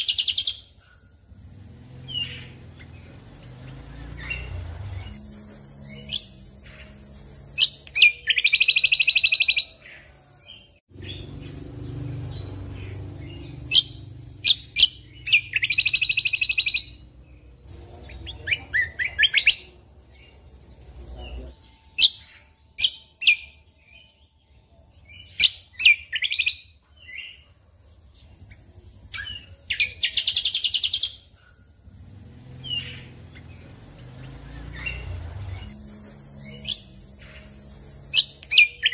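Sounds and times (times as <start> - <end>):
bird trilling: 0.0 - 17.5, 28.2 - 31.7, 32.5 - 38.9
sharp bird chirps: 0.0 - 38.9.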